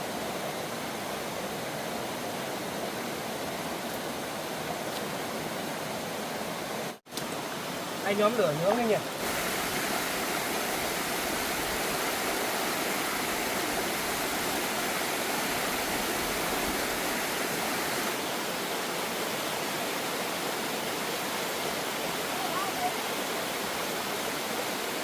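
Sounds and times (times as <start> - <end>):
water rushing over waterfall: 0.0 - 25.0.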